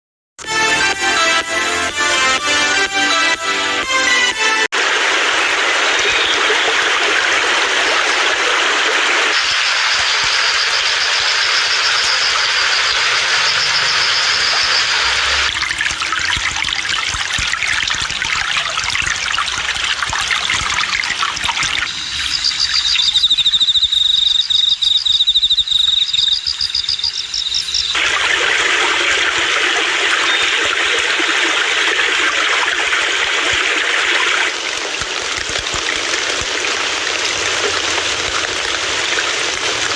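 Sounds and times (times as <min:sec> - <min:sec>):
rushing trickling water: 0:00.4 - 0:24.6, 0:26.6 - 0:39.9
high-pitched chirping: 0:21.8 - 0:28.0.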